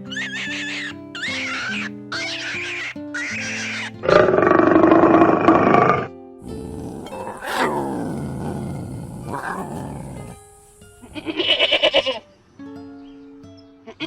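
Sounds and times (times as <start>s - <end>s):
higher-pitched animal call: 0.0s - 4.4s, 6.4s - 12.2s
animal growling and roaring: 4.1s - 11.5s
background music: 6.3s - 14.0s.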